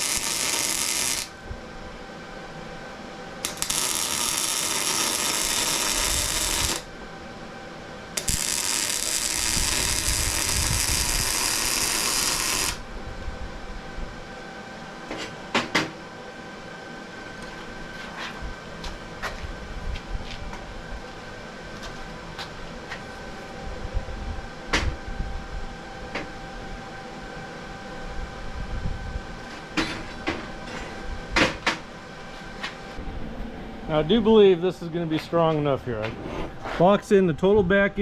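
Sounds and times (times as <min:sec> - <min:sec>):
welding crackling hiss: 0:00.0 - 0:01.4, 0:03.4 - 0:06.9, 0:08.2 - 0:12.8.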